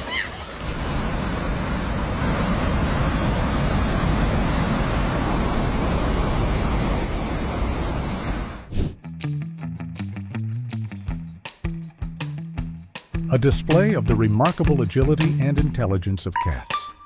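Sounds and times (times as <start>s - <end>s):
landslide rumbling: 0.0s - 9.0s
plucked guitar music: 9.1s - 17.0s.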